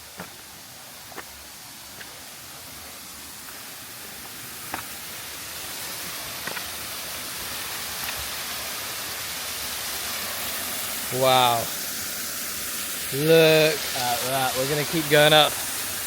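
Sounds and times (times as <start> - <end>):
waterfall rushing: 0.0 - 16.0
sharp knocks like steps on rock: 4.7 - 4.9.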